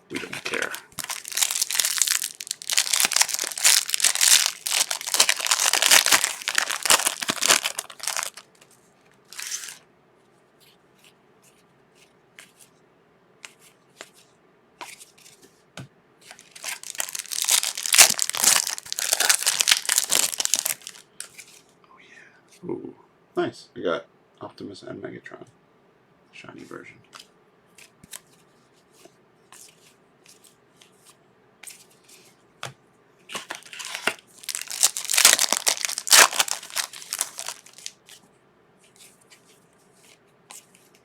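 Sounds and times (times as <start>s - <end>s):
card pack wrappers tearing: 0.1s - 8.5s, 9.3s - 9.8s, 16.3s - 21.1s, 33.5s - 38.1s.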